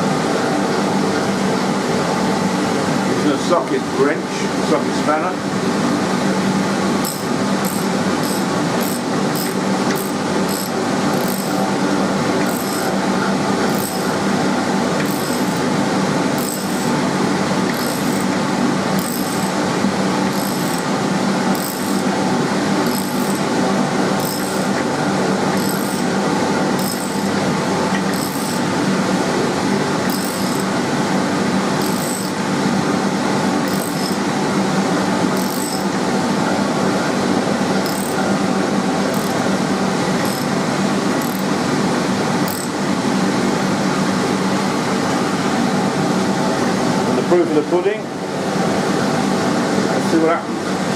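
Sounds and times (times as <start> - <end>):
loud mechanical hum: 0.0 - 50.9
socket wrench ratcheting: 7.0 - 11.5, 19.0 - 19.5.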